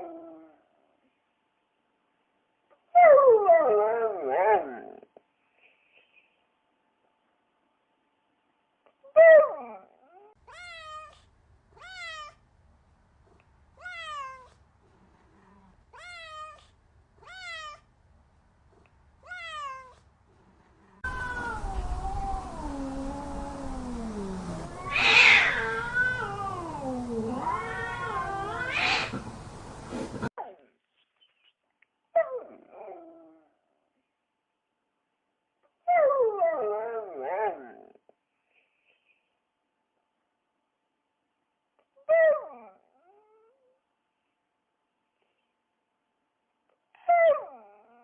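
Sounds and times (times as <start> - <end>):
cat meowing: 10.5 - 11.2, 11.8 - 12.4, 13.8 - 14.6, 15.9 - 17.8, 19.2 - 20.0, 21.0 - 22.8, 24.2 - 29.2
cat yowling: 10.5 - 11.2, 11.8 - 12.4, 13.8 - 14.5, 16.0 - 17.8, 21.0 - 29.2.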